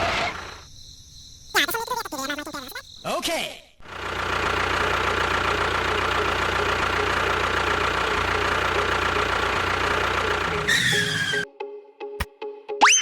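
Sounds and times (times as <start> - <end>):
engine knocking rhythmically: 3.8 - 10.9
falling whistle: 10.6 - 11.5.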